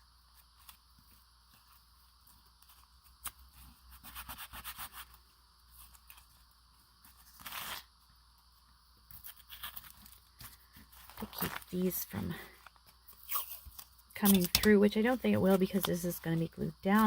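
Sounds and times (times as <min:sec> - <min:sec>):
masking tape ripping: 0:13.2 - 0:14.7.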